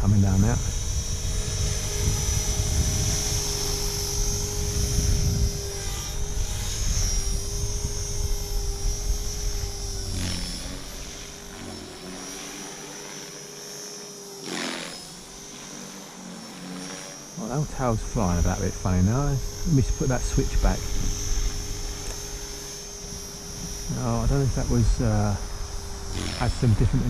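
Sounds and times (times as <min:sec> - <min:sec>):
wind rumble on microphone: 0:00.0 - 0:11.3, 0:17.7 - 0:27.0
rc helicopter motor whine: 0:00.0 - 0:27.0.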